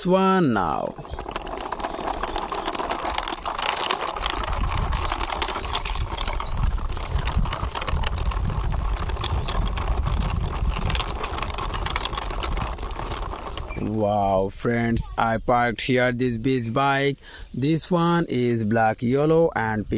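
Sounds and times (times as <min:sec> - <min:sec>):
toy wheels scraping along wall: 0:00.0 - 0:15.6
bird trilling: 0:00.9 - 0:01.4, 0:04.4 - 0:06.9, 0:14.7 - 0:16.1.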